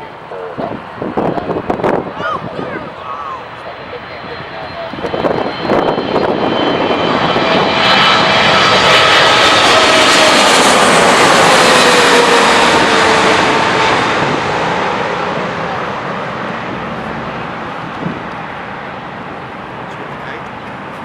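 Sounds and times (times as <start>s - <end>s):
jet airliner passing low: 0.0s - 21.0s.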